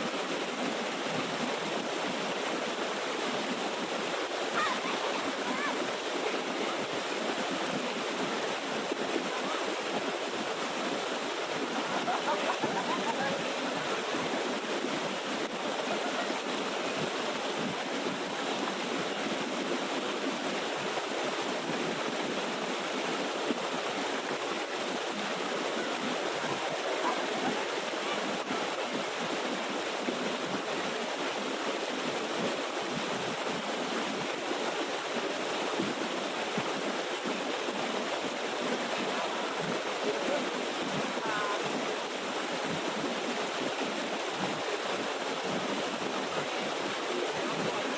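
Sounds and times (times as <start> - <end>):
water pouring over waterfall: 1.8 - 21.7.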